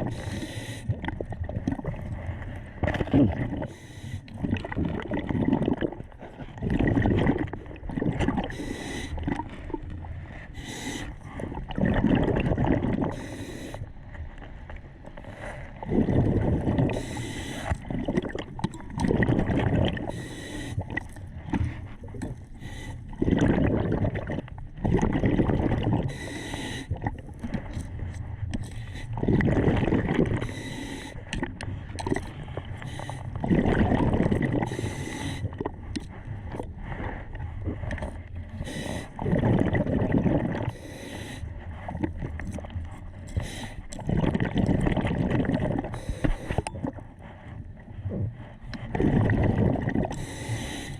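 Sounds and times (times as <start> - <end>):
diver breathing: 0.0 - 1.0, 3.5 - 4.4, 8.4 - 11.7, 13.0 - 14.0, 15.1 - 17.9, 19.7 - 23.2, 26.0 - 42.3, 43.1 - 44.1, 45.7 - 49.2, 50.0 - 50.9
water gurgling and sloshing: 0.0 - 50.9.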